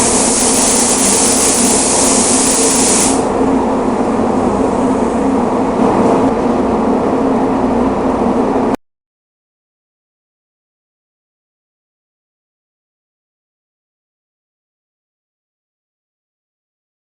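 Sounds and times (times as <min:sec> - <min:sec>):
spray gun hissing: 0:00.0 - 0:03.3
mechanical hum: 0:00.0 - 0:08.8.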